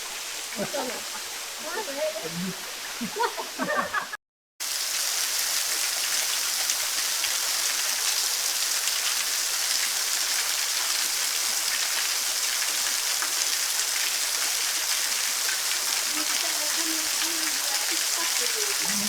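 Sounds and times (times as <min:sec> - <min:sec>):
waterfall rushing: 0:00.0 - 0:04.0, 0:12.5 - 0:19.0.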